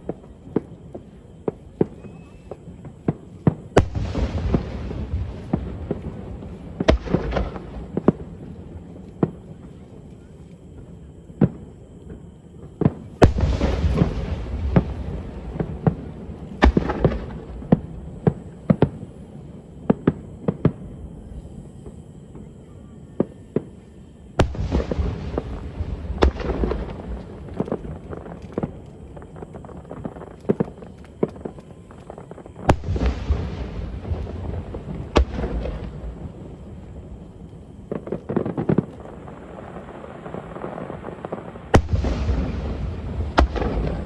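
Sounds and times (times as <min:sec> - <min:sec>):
fireworks bursting: 0:00.0 - 0:44.0.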